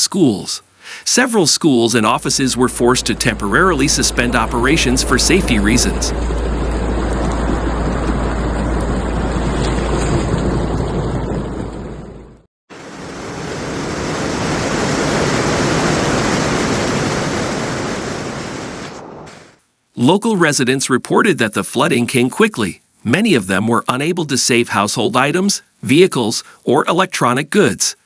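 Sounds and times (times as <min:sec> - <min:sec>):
floodwater rushing: 0:02.0 - 0:10.9, 0:12.7 - 0:19.6
wind buffeting microphone: 0:02.5 - 0:12.3.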